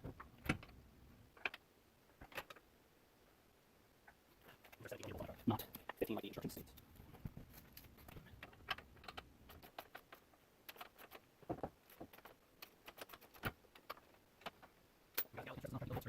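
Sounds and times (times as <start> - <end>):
hand tools clicking and tapping: 7.6 - 15.3.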